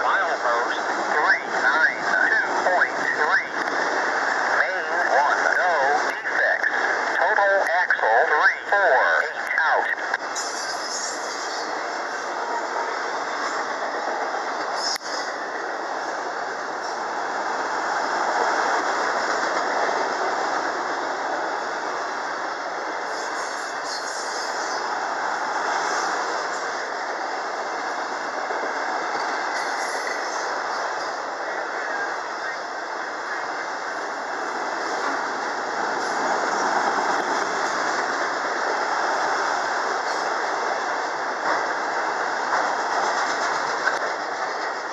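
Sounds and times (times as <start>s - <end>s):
steel wheels rolling on rail: 0.3s - 7.2s, 9.0s - 44.9s
faint rail clacks: 42.5s - 44.9s.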